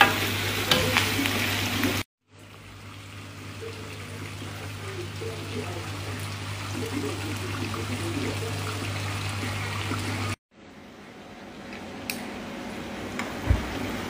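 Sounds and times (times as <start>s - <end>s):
food sizzling in a wok: 0.0s - 10.4s.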